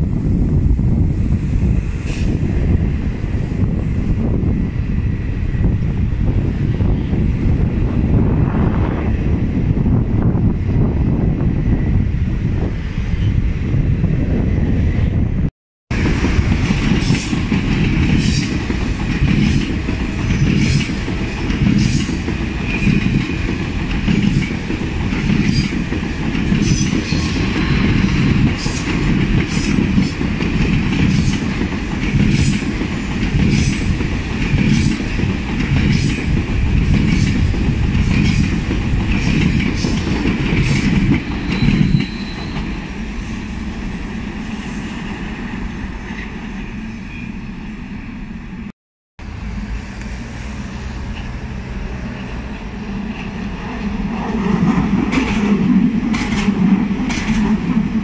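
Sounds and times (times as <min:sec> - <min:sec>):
train rumble: 0:00.0 - 0:58.0
wheels clicking over rail joints: 0:54.6 - 0:57.8.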